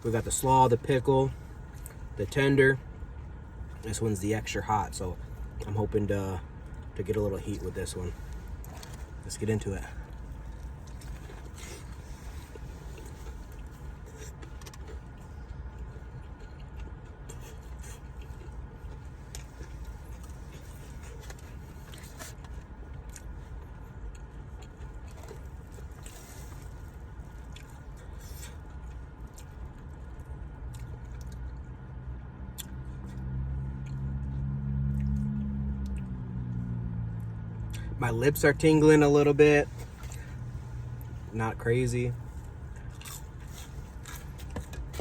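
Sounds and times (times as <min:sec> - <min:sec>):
sandwich rustling: 0:06.6 - 0:16.5
person chewing: 0:07.6 - 0:09.2, 0:09.9 - 0:31.6, 0:42.2 - 0:45.0.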